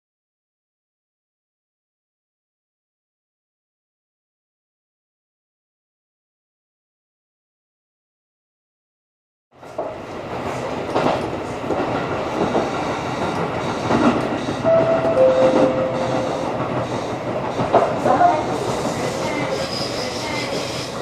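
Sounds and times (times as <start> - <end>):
train wheels clattering on rails: 9.6 - 21.0
train knocks: 9.7 - 20.8
wheel squeal: 18.8 - 21.0.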